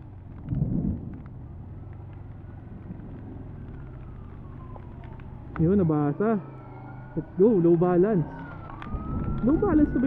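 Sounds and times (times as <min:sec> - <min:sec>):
motorcycle engine running at low revs: 0:00.0 - 0:06.4
raindrop ticks: 0:00.0 - 0:09.9.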